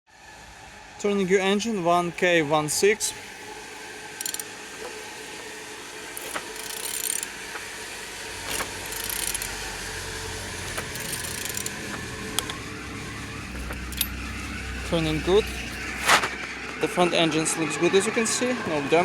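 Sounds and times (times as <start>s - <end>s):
ratchet wrench clicking: 4.2s - 4.5s, 6.2s - 7.3s, 8.5s - 9.8s, 10.7s - 12.6s, 13.6s - 14.2s
engine turning over by hand: 4.2s - 5.5s, 6.1s - 17.5s.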